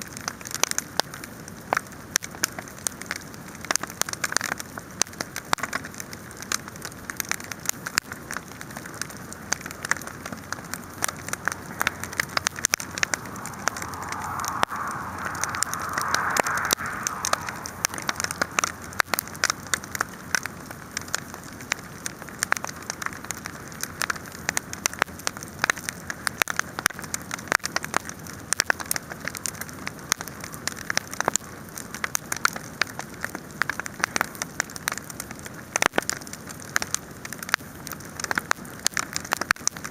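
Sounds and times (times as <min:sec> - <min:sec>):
wood fire crackling and popping: 0:00.3 - 0:39.9.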